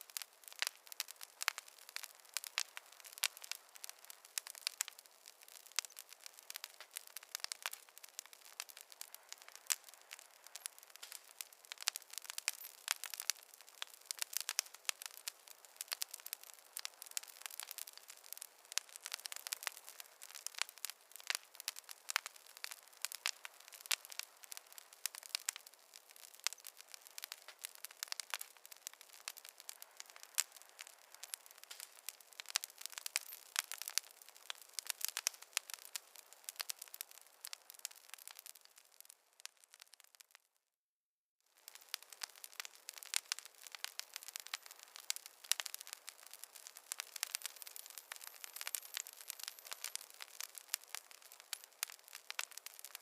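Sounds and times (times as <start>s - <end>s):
wood fire crackling: 0.0s - 40.5s, 41.5s - 53.0s.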